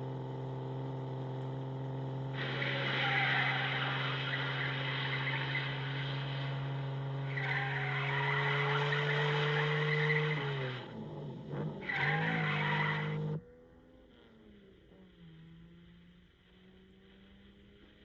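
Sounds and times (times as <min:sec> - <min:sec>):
car engine running hard: 0:00.0 - 0:18.0
tyres squealing: 0:02.4 - 0:10.8, 0:11.8 - 0:13.4.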